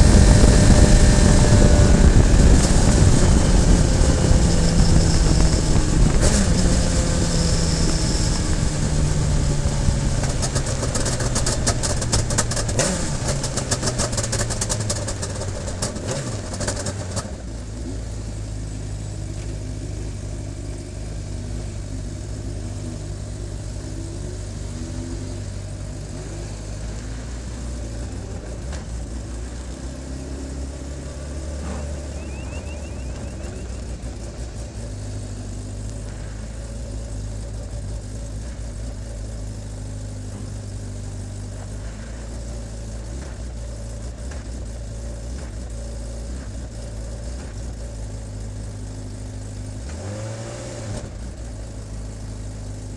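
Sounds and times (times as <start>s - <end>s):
rapid clicks and rattles: 0.0s - 17.6s
racing car engine: 0.0s - 52.9s.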